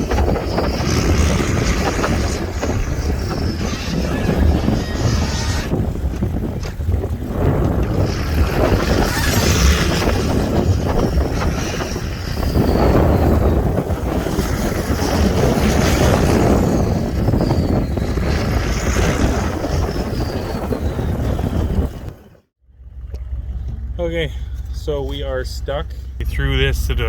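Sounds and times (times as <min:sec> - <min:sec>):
rush of snow and wind: 0:00.0 - 0:22.5
diesel truck engine working hard: 0:22.6 - 0:27.0
high whine sliding down: 0:22.8 - 0:27.0.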